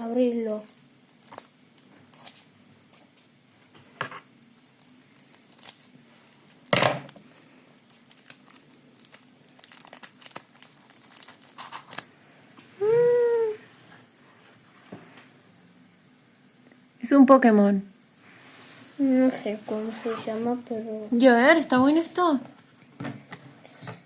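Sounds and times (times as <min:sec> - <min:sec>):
plastic wrapper crinkling: 0:00.4 - 0:03.0, 0:04.5 - 0:12.1
wrapper ripping: 0:04.5 - 0:12.1.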